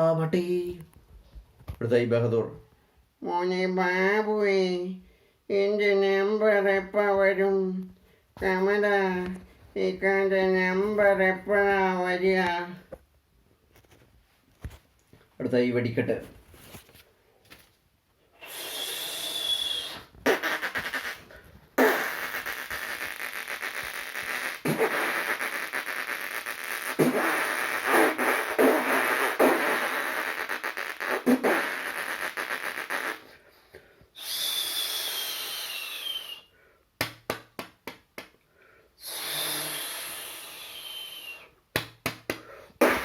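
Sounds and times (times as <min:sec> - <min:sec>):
person imitating fireworks with mouth: 0:18.4 - 0:33.4, 0:34.2 - 0:36.5, 0:39.0 - 0:41.6, 0:42.2 - 0:43.0.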